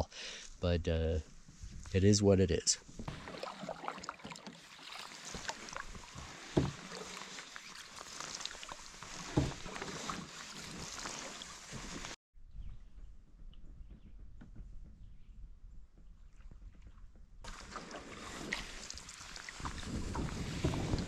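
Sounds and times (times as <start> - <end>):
paddle knocking: 3.0 - 12.1, 17.5 - 21.0
water swishing off paddle: 3.0 - 12.2, 17.5 - 21.0.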